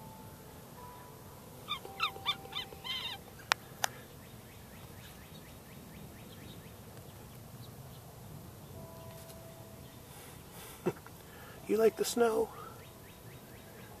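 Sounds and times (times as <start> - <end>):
faint rapid chirping: 1.6 - 6.9
bird calling short notes: 1.7 - 4.0.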